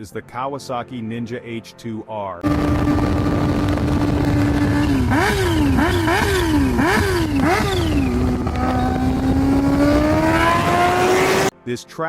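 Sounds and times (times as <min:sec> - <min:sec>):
motorcycle engine revving: 0:02.4 - 0:11.5.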